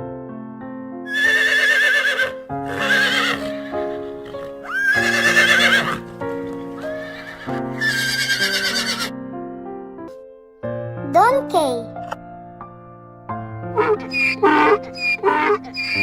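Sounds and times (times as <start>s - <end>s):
background music: 0.9s - 16.0s
horse neighing: 1.1s - 9.1s, 13.8s - 16.0s.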